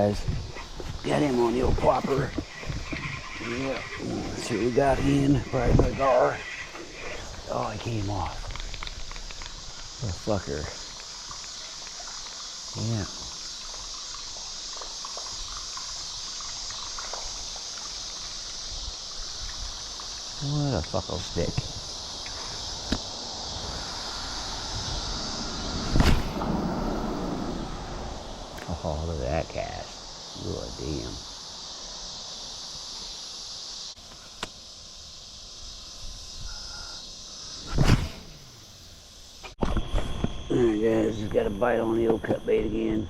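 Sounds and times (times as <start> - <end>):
crickets chirping: 0.0 - 43.0
night insects chorus: 0.0 - 43.0
water trickling and dripping: 7.7 - 22.8.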